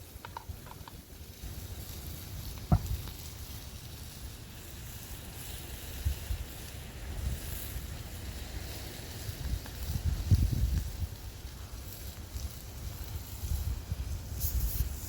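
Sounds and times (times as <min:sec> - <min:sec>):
wind buffeting microphone: 0:02.4 - 0:03.2, 0:09.1 - 0:11.4, 0:13.2 - 0:15.0
sharp knock: 0:02.7 - 0:03.0.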